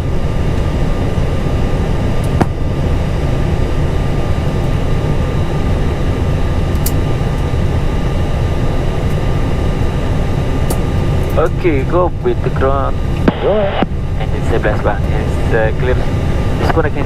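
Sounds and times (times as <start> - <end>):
faint whine tones: 0.0 - 17.0
jet engines idling: 0.0 - 17.0.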